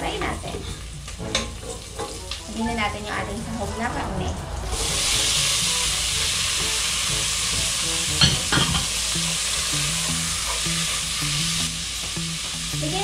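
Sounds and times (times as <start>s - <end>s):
meat sizzling in oil: 4.7s - 13.0s.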